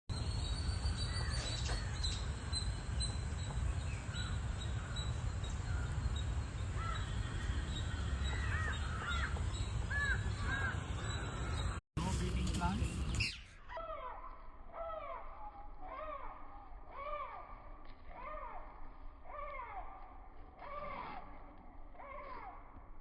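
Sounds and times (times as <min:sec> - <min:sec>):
birds calling: 0:00.1 - 0:14.1.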